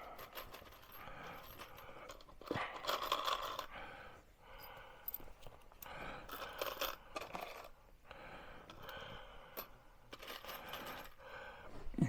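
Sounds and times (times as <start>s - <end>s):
metal screws clinking and scraping: 0.0s - 3.7s, 5.0s - 7.8s, 8.7s - 11.2s.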